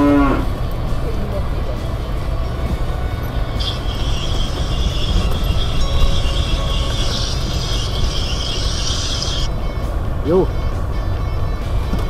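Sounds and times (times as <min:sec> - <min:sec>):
engine and drivetrain rumble: 0:00.0 - 0:12.0
high-pitched hiss: 0:03.6 - 0:09.5.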